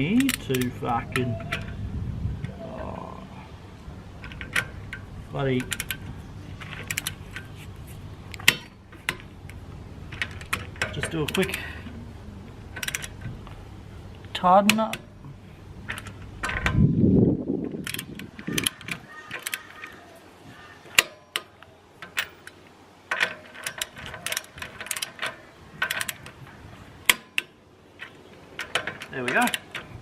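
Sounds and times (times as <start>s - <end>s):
metallic knocks: 8.3s - 11.6s
ratchet wrench clicking: 17.8s - 19.9s.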